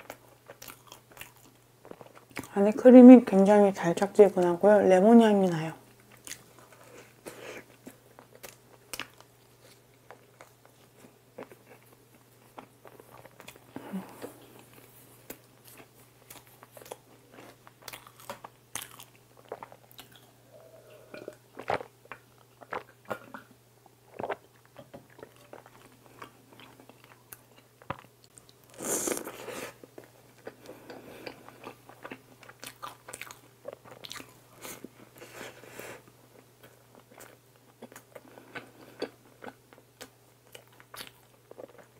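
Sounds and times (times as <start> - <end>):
chewing and biting bread: 0.0 - 2.5, 6.1 - 20.3, 30.0 - 34.4
sip of milk: 28.8 - 29.8.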